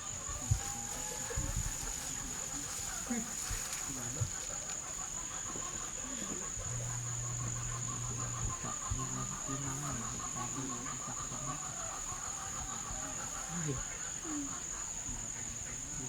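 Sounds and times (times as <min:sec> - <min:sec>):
insects chirping and trilling: 0:00.0 - 0:16.0.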